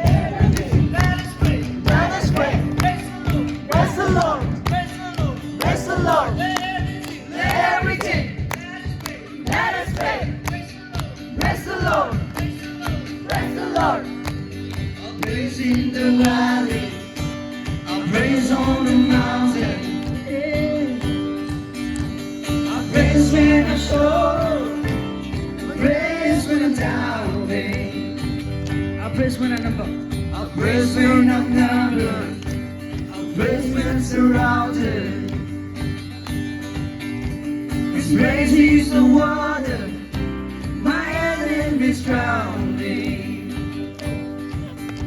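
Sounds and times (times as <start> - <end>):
band with bass and drums: 0.0 - 45.0
crowd noise: 0.0 - 45.0
person singing: 22.7 - 24.9.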